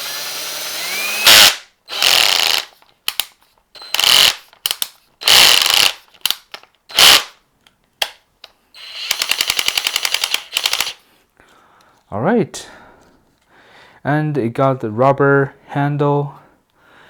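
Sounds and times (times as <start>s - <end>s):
cordless drill clutch ratcheting: 0.0s - 7.3s, 8.8s - 11.0s.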